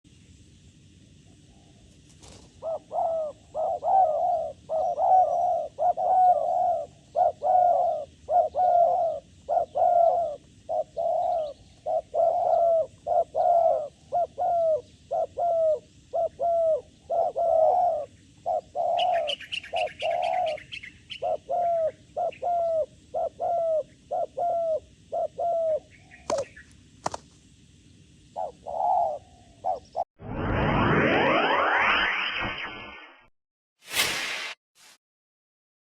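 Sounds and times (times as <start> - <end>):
dove cooing: 1.5 - 26.6, 28.3 - 30.0
high bird chirps: 18.9 - 21.3.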